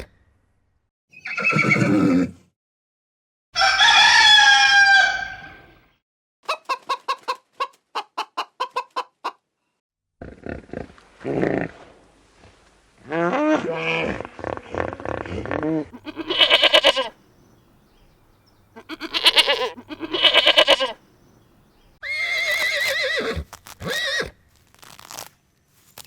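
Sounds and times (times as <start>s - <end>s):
goat bleating: 16.0s - 17.2s, 18.8s - 21.0s.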